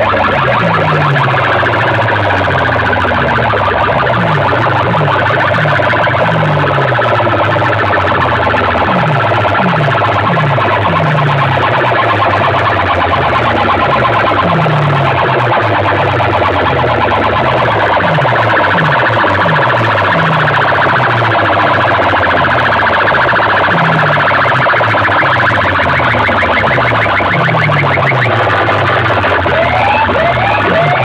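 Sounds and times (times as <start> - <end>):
falling bass sweeps: 0.0 - 24.5
fast-pulsing alarm-like tone: 0.0 - 31.0.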